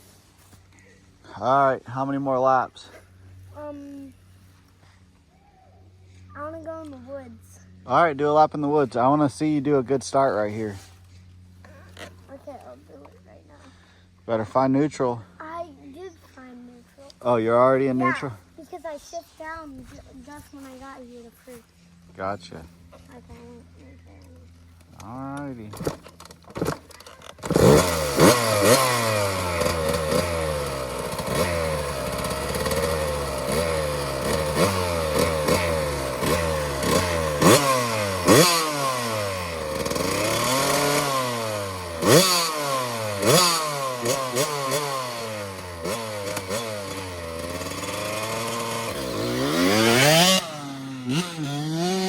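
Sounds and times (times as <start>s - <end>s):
dirt bike engine revving: 24.9s - 52.0s.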